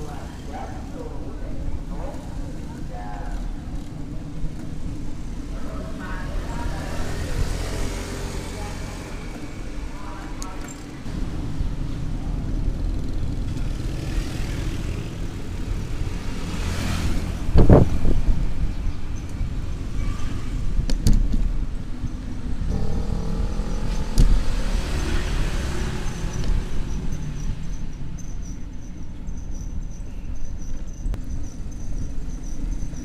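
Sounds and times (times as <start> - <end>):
road traffic passing: 0.0 - 33.0
pitched engine hum: 21.7 - 33.0.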